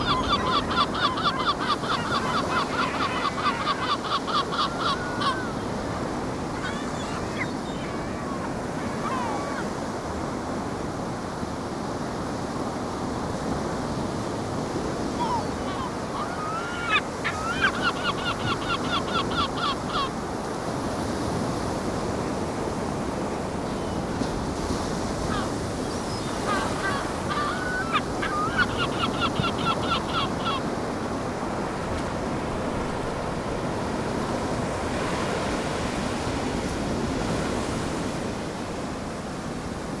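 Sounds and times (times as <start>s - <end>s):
seagull calling: 0.0s - 10.0s, 14.5s - 21.4s, 23.6s - 31.0s
ocean waves washing on shore: 0.0s - 40.0s.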